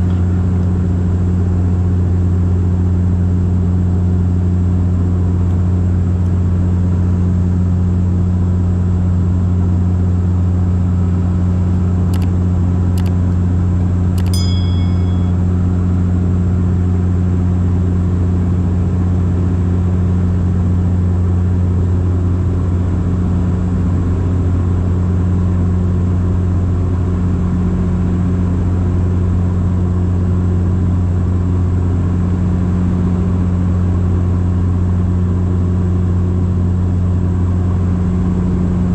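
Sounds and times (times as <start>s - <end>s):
propeller drone in cabin: 0.0s - 38.9s
sharp clicks: 12.1s - 13.2s, 14.2s - 14.4s
short ringing ding: 14.2s - 15.5s.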